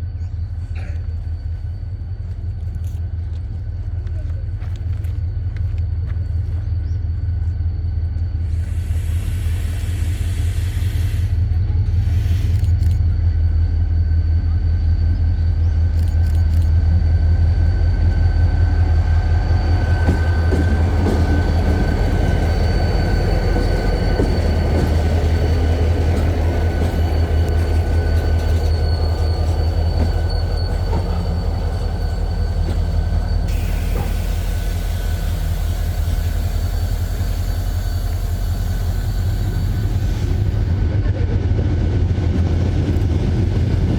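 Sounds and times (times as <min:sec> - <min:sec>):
faint high whine: 0:00.0 - 0:40.8
train rumbling past: 0:00.0 - 0:43.9.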